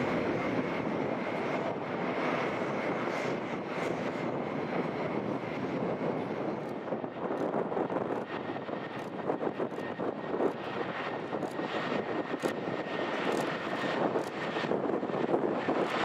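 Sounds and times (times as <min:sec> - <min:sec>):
distant jet engines roaring: 0:00.0 - 0:16.0.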